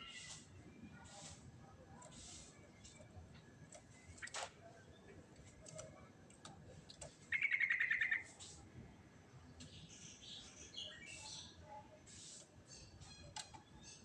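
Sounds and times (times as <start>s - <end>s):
bird singing fast trill: 7.3s - 8.2s
bird chattering: 7.3s - 8.3s.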